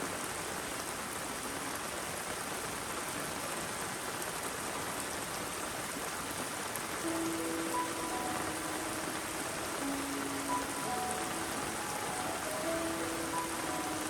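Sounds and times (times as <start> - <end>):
rainwater running in a stream: 0.0 - 14.0
steady rain: 0.0 - 14.0
soft held musical notes: 7.0 - 14.0.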